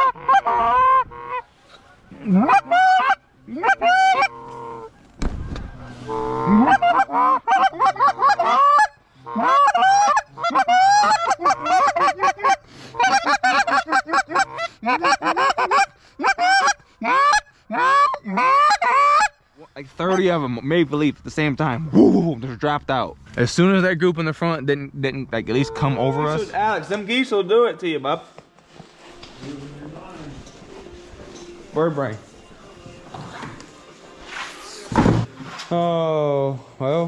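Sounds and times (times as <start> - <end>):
geese honking and clucking: 0.0 - 19.4, 25.5 - 26.7
low thump: 5.2 - 5.8.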